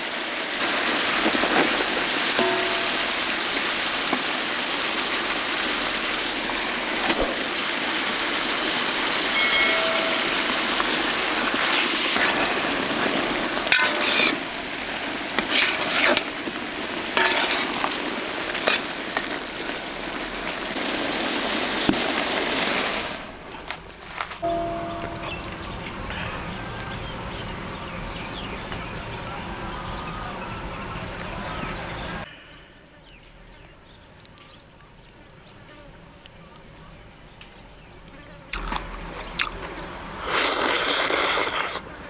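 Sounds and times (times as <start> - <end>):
food sizzling in a pan: 0.0 - 32.3.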